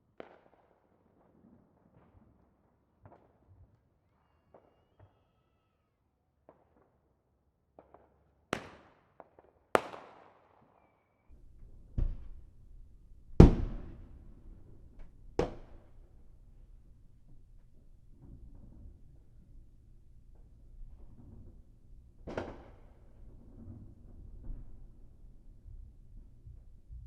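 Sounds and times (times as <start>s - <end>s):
faint firework pops: 0.2s - 0.8s, 7.8s - 12.5s, 13.4s - 16.1s, 22.2s - 24.8s
fireworks bangs with echo: 0.2s - 2.4s, 7.8s - 10.8s, 11.4s - 16.4s, 22.2s - 24.8s.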